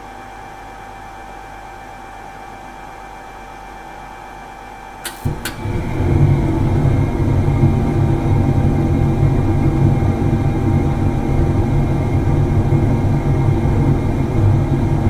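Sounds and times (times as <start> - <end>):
factory machinery drone: 5.0 - 15.0.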